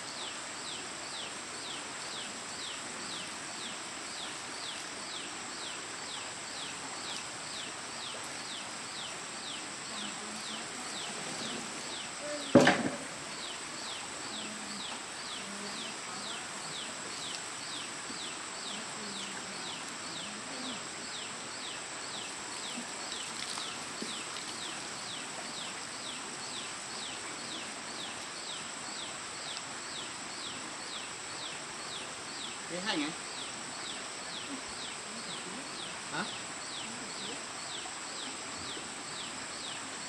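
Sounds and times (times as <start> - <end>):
high insect drone: 0.0 - 40.0
sharp knock: 12.5 - 13.3.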